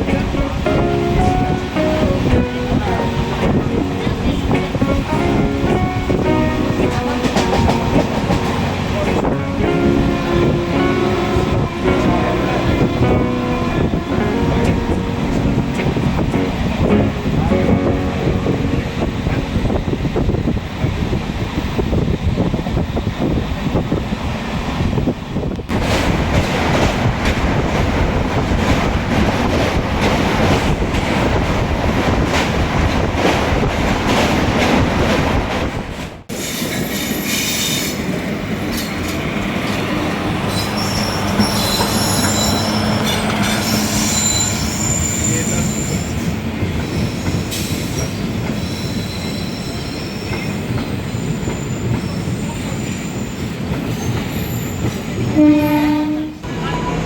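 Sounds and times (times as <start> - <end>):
train rattling on rails: 0.0 - 57.0
high wheel squeals: 40.4 - 56.0.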